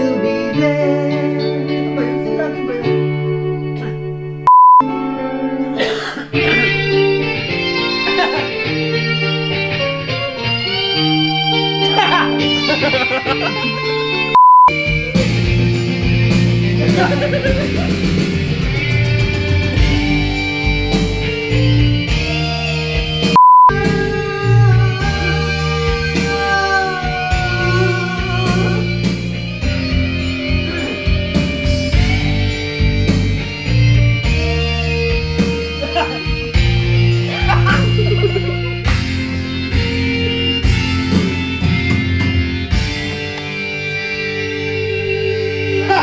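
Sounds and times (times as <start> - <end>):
guitar-led rock music: 0.0 - 46.0
loud steady beep: 4.5 - 4.9, 14.4 - 14.8, 23.4 - 23.8.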